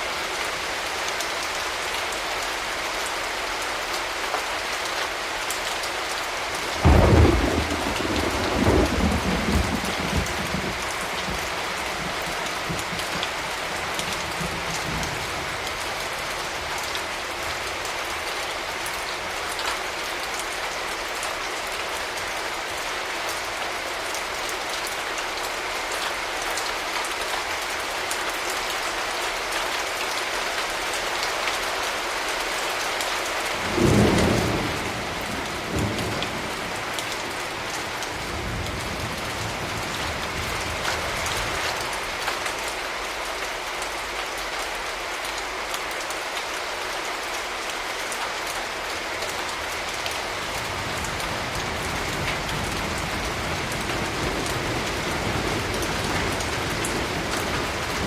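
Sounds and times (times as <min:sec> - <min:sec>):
steady rain: 0:00.0 - 0:58.0
thunder rumbling: 0:06.8 - 0:13.3.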